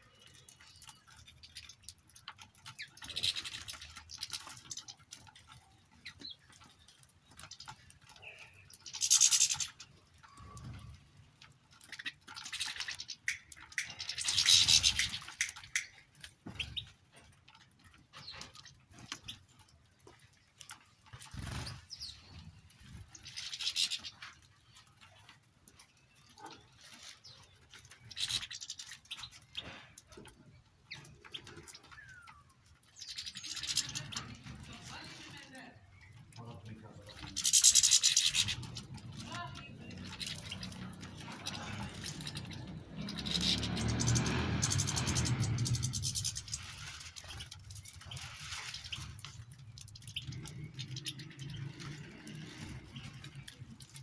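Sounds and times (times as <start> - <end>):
small songbirds chirping: 0.0 - 54.0
small clicks: 0.1 - 17.7.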